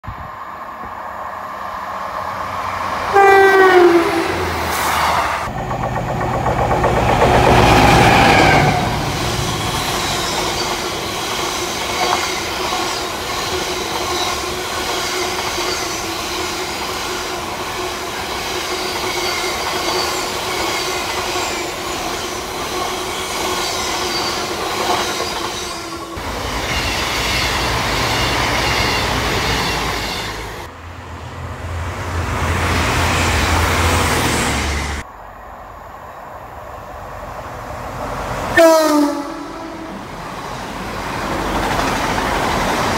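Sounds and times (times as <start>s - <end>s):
diesel train passing: 0.0s - 42.9s
freight train rumbling past: 0.0s - 42.9s
train horn: 3.1s - 4.8s, 38.5s - 40.1s.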